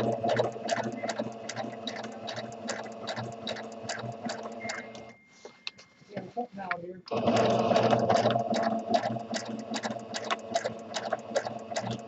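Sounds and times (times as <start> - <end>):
sewing machine motor hum: 0.0 - 5.1, 7.1 - 12.0
sewing needle clicking: 0.0 - 5.1, 7.8 - 12.0.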